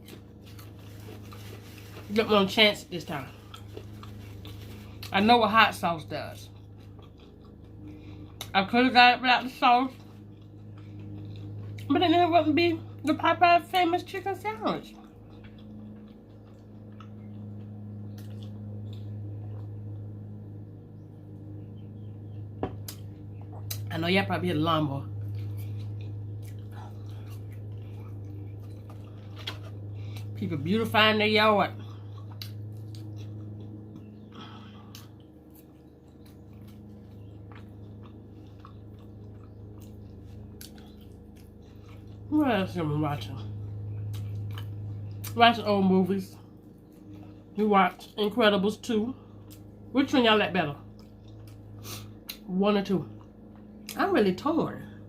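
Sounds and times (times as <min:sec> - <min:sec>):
wet chewing and mouth clicks: 0:03.3 - 0:05.2, 0:06.3 - 0:08.6, 0:09.4 - 0:13.2, 0:14.4 - 0:20.3, 0:22.8 - 0:23.9, 0:25.1 - 0:30.4, 0:31.8 - 0:42.4, 0:43.5 - 0:45.4, 0:49.3 - 0:49.9, 0:50.8 - 0:52.5.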